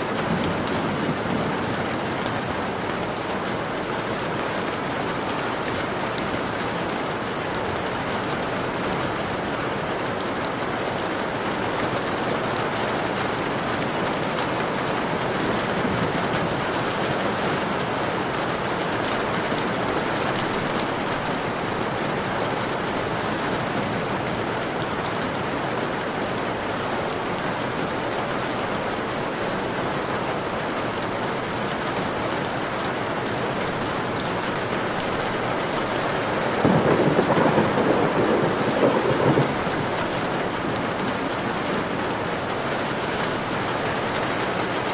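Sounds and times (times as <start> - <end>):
heavy rain on a window: 0.0 - 44.9
thunder rumbling: 35.9 - 42.6.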